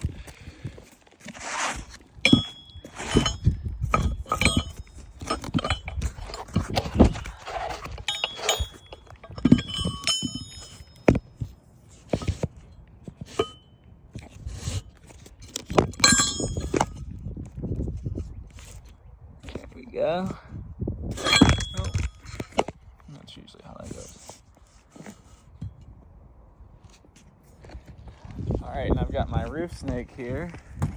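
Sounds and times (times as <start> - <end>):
metallic clinks of tools: 2.2 - 11.2, 13.3 - 13.6, 15.8 - 17.0, 21.2 - 22.2.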